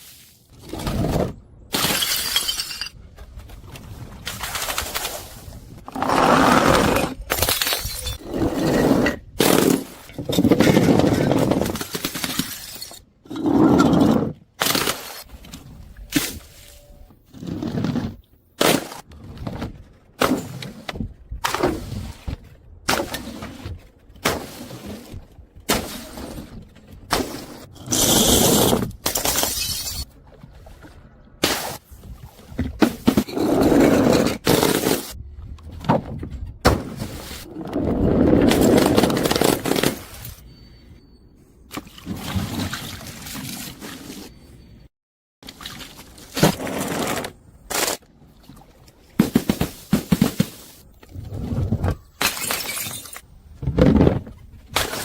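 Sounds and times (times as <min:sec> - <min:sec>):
glass bottles shattering: 0:01.7 - 0:03.0, 0:07.3 - 0:08.2, 0:29.0 - 0:30.1, 0:52.0 - 0:53.2.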